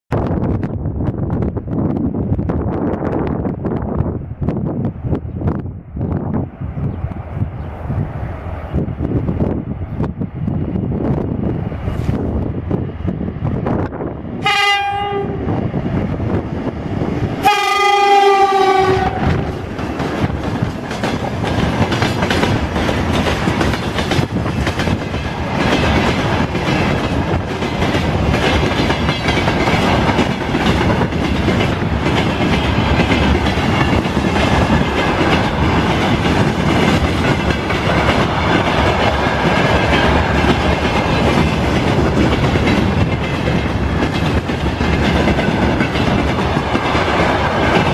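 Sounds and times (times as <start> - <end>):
train wheels clattering on rails: 13.5 - 47.9
locomotive horn blasts: 14.4 - 15.5, 17.4 - 19.5.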